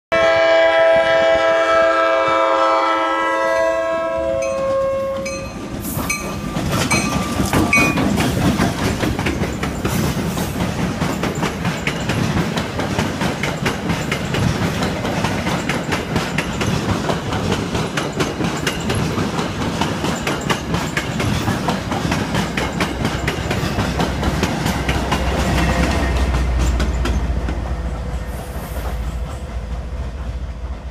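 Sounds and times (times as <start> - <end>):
train horn chord: 0.1 - 5.5
diesel locomotive engine rumble: 0.2 - 30.9
wheels clacking over rail joints: 4.4 - 30.4.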